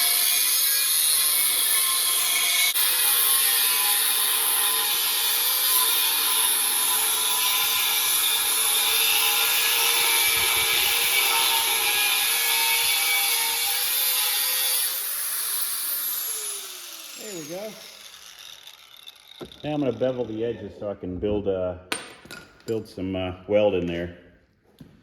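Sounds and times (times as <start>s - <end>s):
angle grinder cutting steel: 0.0s - 20.4s
grinder wheel winding down: 13.6s - 20.4s.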